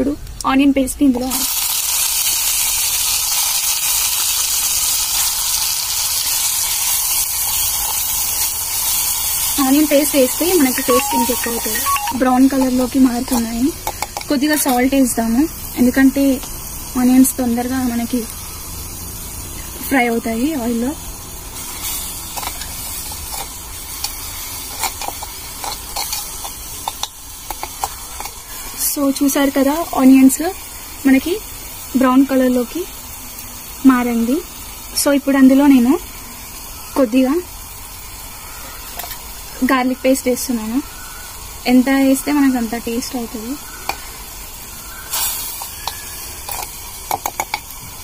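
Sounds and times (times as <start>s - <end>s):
onion paste sizzling in oil: 0.0s - 48.0s
spoon scraping a pot: 21.8s - 28.6s.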